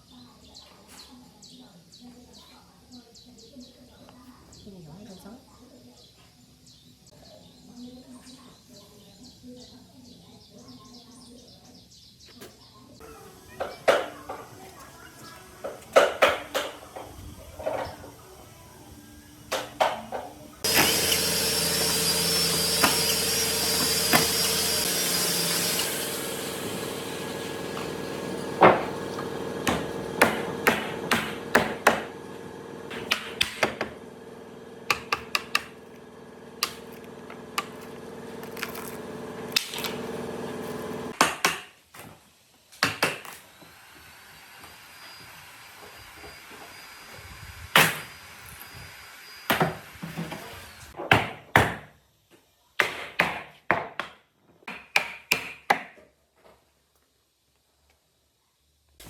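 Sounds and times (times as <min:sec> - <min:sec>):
power tool running: 0:13.0 - 0:41.2, 0:43.4 - 0:51.0.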